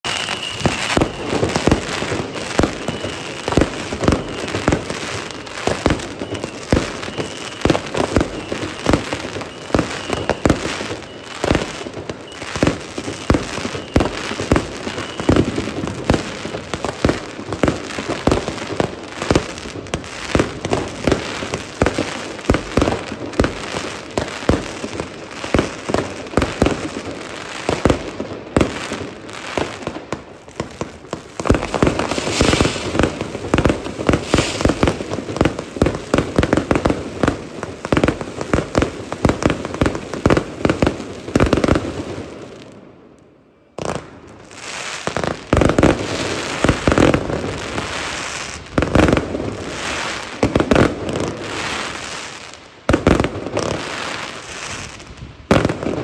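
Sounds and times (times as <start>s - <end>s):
firework crackling: 0.0s - 42.9s, 43.8s - 56.0s
fireworks bangs: 0.0s - 42.9s, 43.7s - 56.0s.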